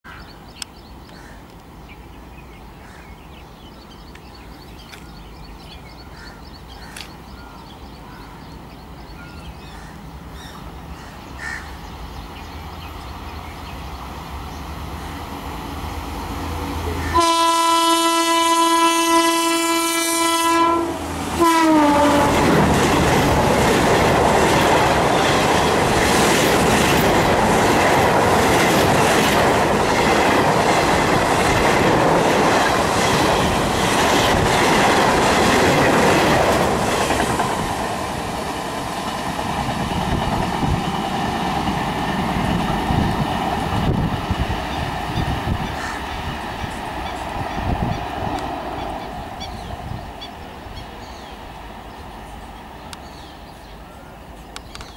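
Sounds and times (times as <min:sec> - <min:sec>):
electric locomotive rumble: 0:03.8 - 0:54.9
train horn: 0:16.8 - 0:22.6
coach wheels clattering over rails: 0:21.1 - 0:49.8.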